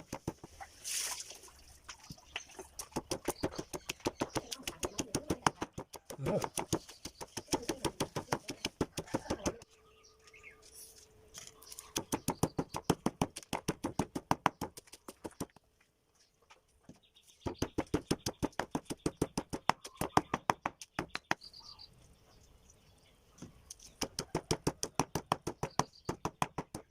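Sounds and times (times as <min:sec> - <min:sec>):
rapid pounding of ingredients: 0:02.9 - 0:09.6, 0:17.5 - 0:21.4.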